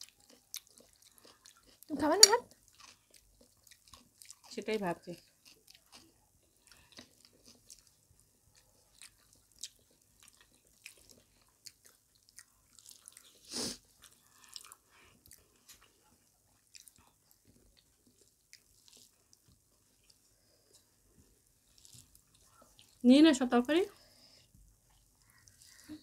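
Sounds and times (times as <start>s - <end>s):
people chewing food: 0.0s - 26.0s.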